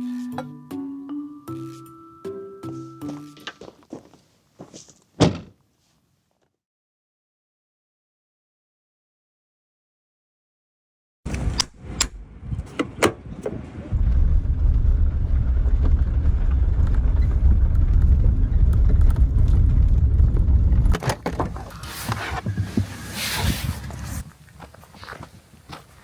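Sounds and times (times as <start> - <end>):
car engine and tyre rumble: 11.3 - 26.0.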